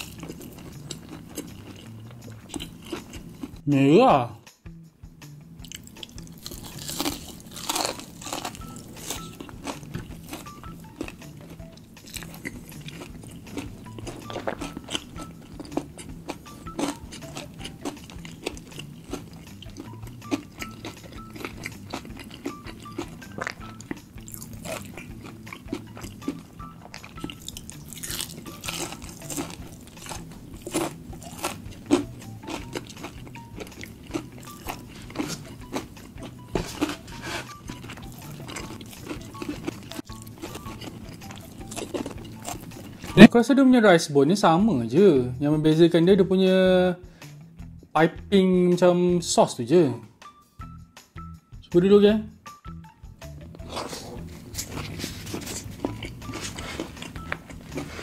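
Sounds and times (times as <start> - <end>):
crunchy chewing of fried chicken: 0.0 - 3.6, 5.6 - 43.3, 53.5 - 58.0
soft background music: 0.0 - 58.0.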